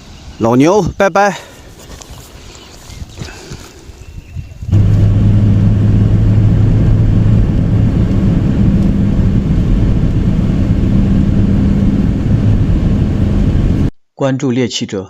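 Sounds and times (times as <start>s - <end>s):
loud low drone: 4.7s - 13.9s
low hum: 4.7s - 13.9s.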